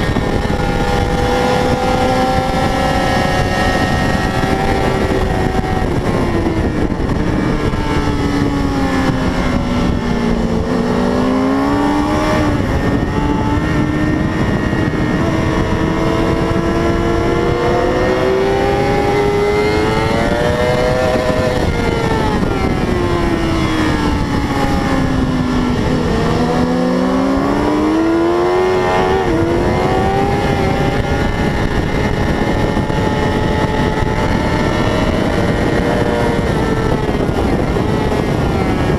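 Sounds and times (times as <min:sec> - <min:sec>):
racing motorcycle engine: 0:00.0 - 0:38.9.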